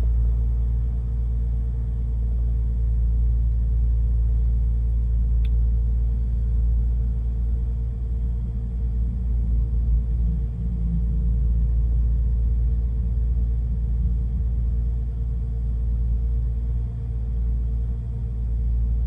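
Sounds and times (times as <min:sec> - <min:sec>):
faint click: 0:05.4 - 0:05.6.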